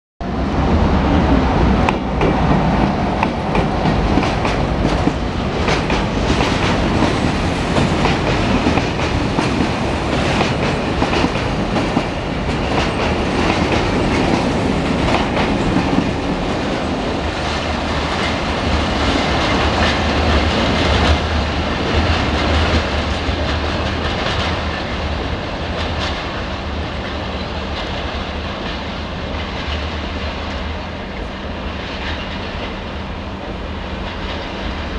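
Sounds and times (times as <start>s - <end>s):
freight train rolling past: 0.2s - 34.9s
wheels clacking over rail joints: 1.8s - 30.7s.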